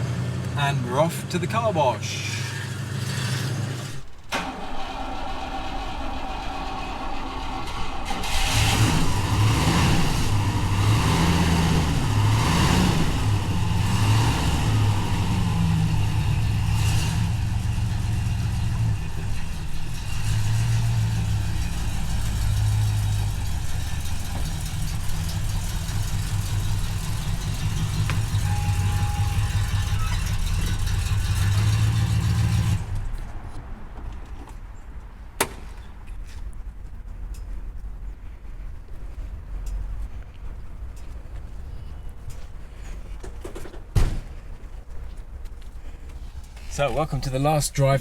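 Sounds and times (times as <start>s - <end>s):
car engine accelerating: 2.1s - 33.2s.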